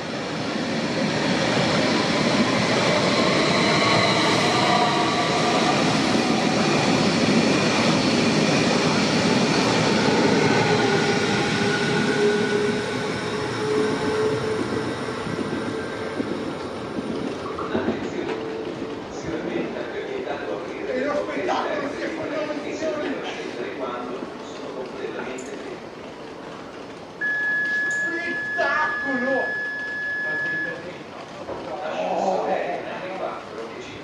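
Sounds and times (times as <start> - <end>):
electric train passing: 0.0 - 21.2.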